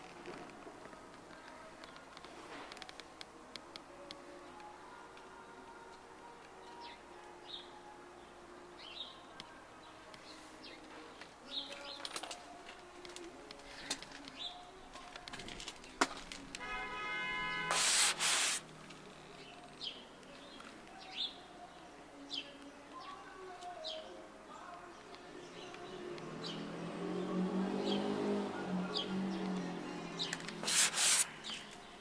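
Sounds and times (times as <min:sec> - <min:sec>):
loud hiss: 0:17.7 - 0:18.6, 0:30.6 - 0:31.4.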